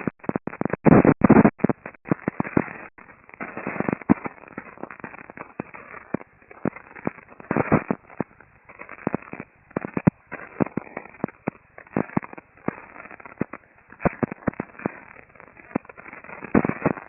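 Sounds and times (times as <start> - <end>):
shortwave radio static: 0.0 - 17.0.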